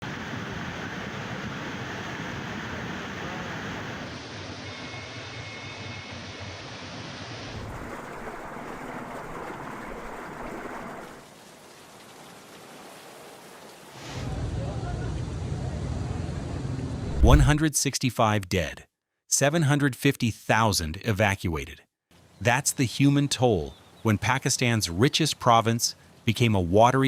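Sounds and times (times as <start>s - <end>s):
floodwater rushing: 7.6s - 14.0s.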